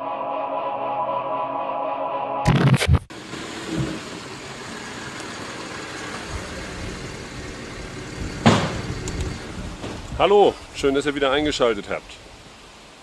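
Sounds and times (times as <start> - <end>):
car engine idling: 3.1 - 10.9
loud engine burst: 6.0 - 10.0.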